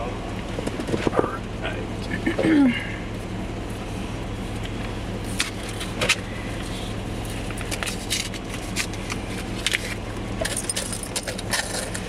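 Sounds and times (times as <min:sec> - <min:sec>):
vehicle engine humming: 0:00.0 - 0:12.0
clicks and jingles: 0:10.4 - 0:12.0.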